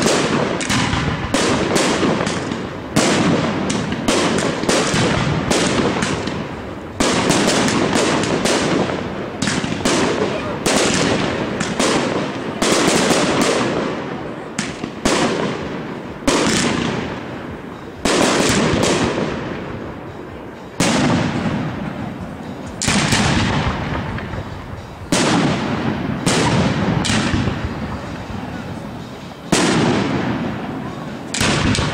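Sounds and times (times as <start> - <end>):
firework shells bursting: 0.0 - 31.9
rolling echo rumble: 0.0 - 31.9.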